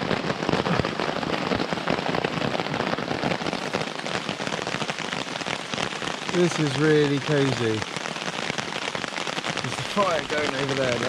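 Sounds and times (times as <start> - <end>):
heavy rain on a tarp: 0.0 - 11.0.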